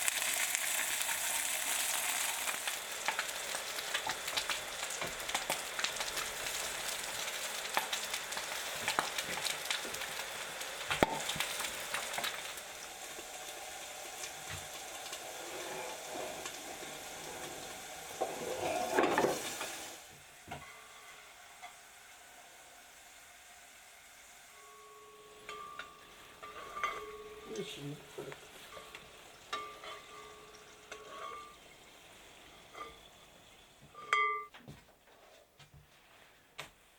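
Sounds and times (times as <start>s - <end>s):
food sizzling in frying pan: 0.0s - 34.2s
metal utensil scraping in pan: 15.2s - 19.8s, 20.5s - 21.8s, 24.5s - 31.8s, 32.4s - 33.2s, 33.9s - 34.5s.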